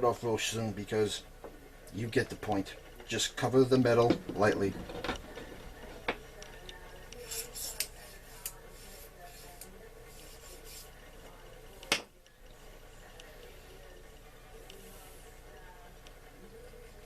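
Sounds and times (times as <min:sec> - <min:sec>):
rubbing on metal part: 0:07.2 - 0:11.0.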